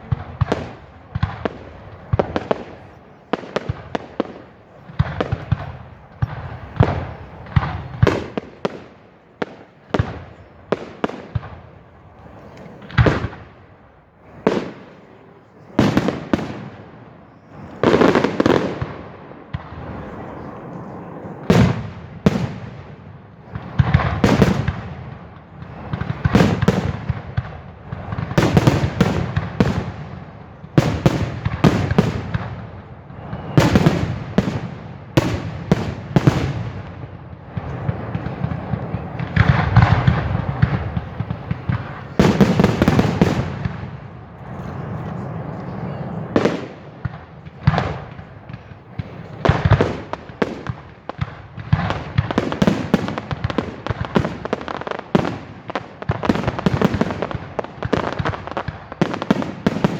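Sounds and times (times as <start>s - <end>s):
fireworks exploding: 0.0s - 59.9s
echoing rumble and crackle: 21.4s - 52.4s.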